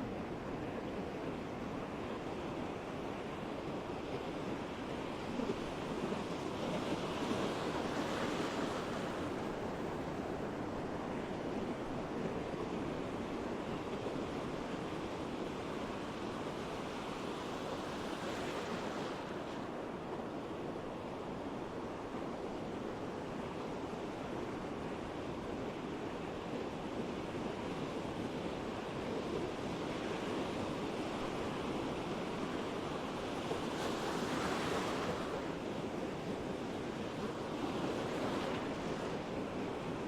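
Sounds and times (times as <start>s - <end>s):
ocean waves breaking: 27.6s - 40.0s.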